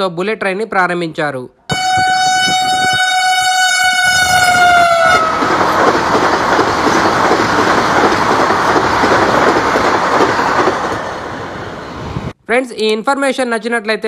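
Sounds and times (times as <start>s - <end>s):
train horn: 1.7s - 5.4s
train passing at speed: 1.7s - 12.4s.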